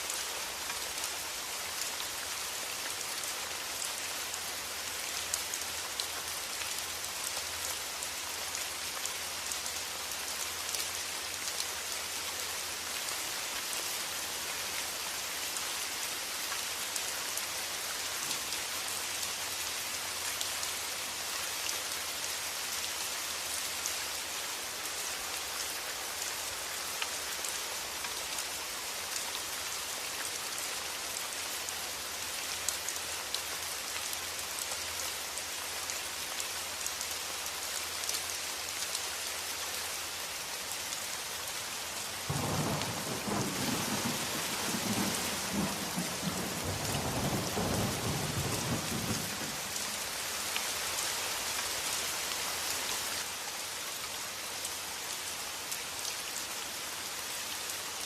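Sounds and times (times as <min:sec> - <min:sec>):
steady rain falling: 0:00.0 - 0:58.0
thunder rumbling: 0:42.3 - 0:49.7.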